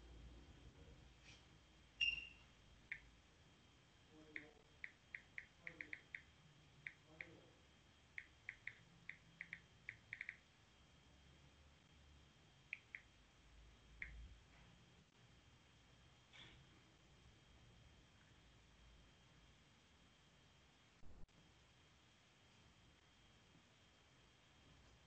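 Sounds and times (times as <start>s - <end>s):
small bird chirping: 2.0s - 3.0s.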